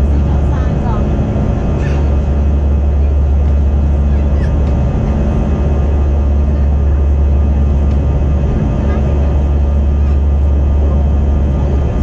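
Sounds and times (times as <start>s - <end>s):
jet engine cabin drone: 0.0s - 12.0s.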